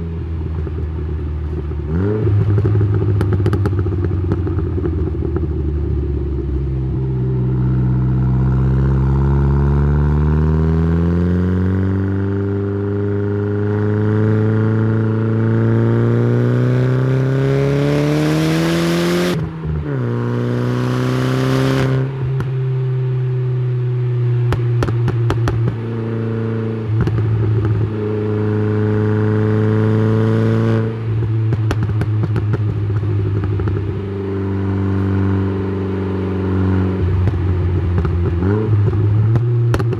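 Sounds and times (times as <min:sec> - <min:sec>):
car engine revving: 0:15.6 - 0:22.3.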